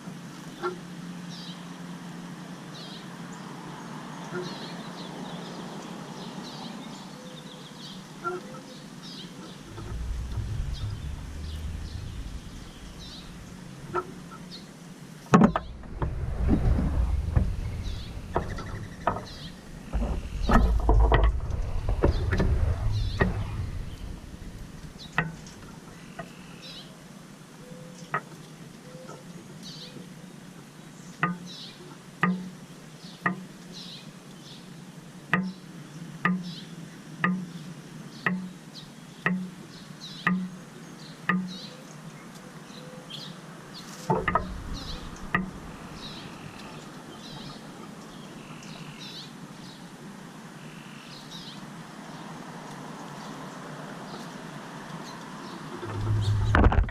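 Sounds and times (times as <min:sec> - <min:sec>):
small birds chirping: 0:04.4 - 0:14.8, 0:16.5 - 0:26.9, 0:37.5 - 0:49.9
low thumps and rumbles: 0:09.5 - 0:14.7, 0:15.3 - 0:25.9, 0:44.1 - 0:47.7, 0:55.7 - 0:56.9.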